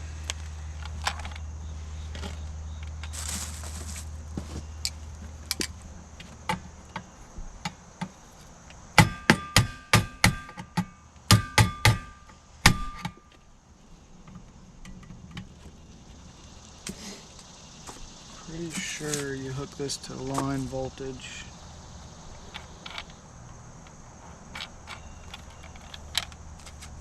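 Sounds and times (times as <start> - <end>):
sharp metallic knocks: 9.0 - 13.4.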